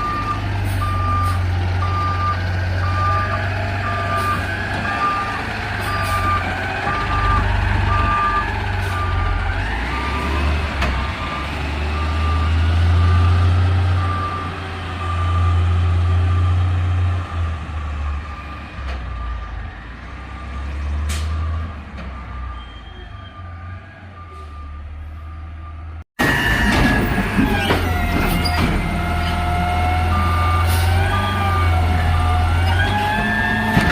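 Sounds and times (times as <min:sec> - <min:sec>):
reverse alarm beeping: 0:00.0 - 0:10.4.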